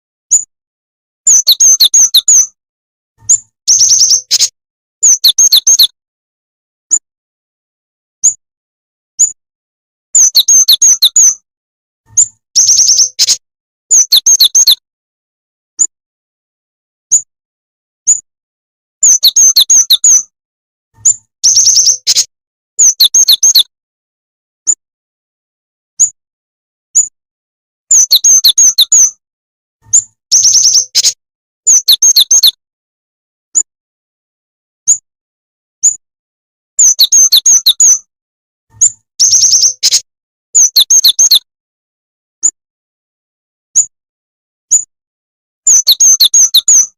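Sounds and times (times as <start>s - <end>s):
songbird chirping: 1.3s - 2.6s, 3.2s - 6.0s, 8.2s - 8.4s, 10.2s - 11.4s, 12.1s - 14.8s, 19.0s - 20.3s, 21.0s - 23.7s, 27.9s - 29.2s, 29.9s - 32.6s, 36.8s - 38.1s, 38.8s - 41.5s, 45.7s - 46.9s.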